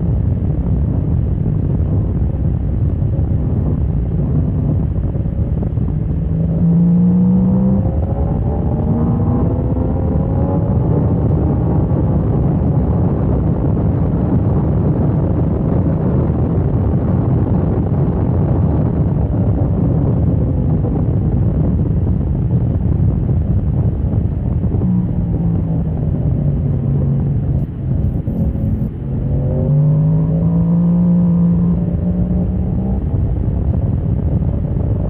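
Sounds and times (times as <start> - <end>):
wind rush on microphone: 0.0 - 35.0
motorcycle engine accelerating: 4.2 - 14.6, 23.0 - 35.0.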